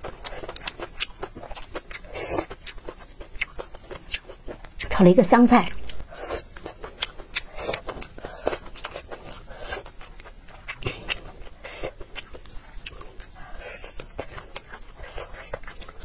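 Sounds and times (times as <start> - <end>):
person chewing greens: 0.0 - 16.0.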